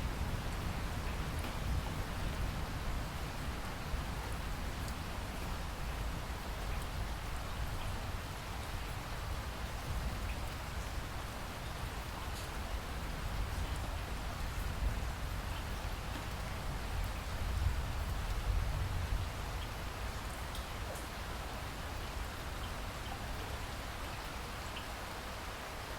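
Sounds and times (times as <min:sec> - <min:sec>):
steady rain falling: 0:00.0 - 0:25.9
faint drip ticks: 0:04.2 - 0:08.0, 0:12.3 - 0:12.6, 0:19.5 - 0:21.2.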